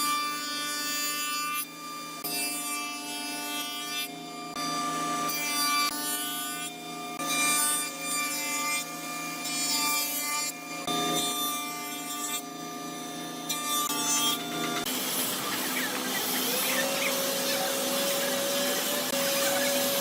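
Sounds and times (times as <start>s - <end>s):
rough rasping strokes on wood: 13.9s - 20.0s
steady tones: 14.3s - 20.0s.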